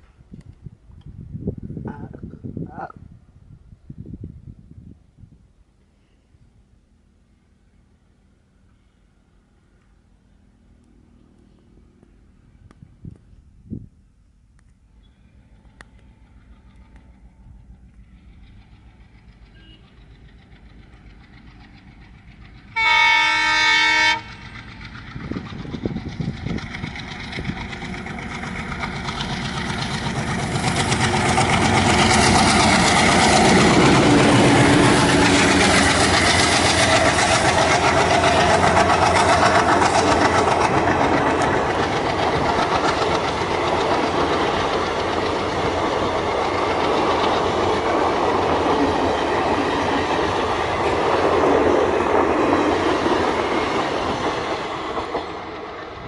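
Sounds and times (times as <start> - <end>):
diesel locomotive passing: 0.0 - 56.0
coach wheels rolling on rails: 15.3 - 56.0.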